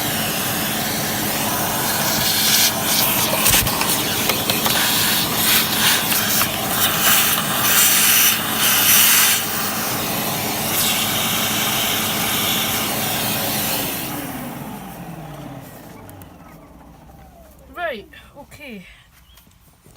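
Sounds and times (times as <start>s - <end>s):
vacuum cleaner sucking: 0.0s - 17.7s
nozzle scraping surfaces: 0.6s - 11.3s.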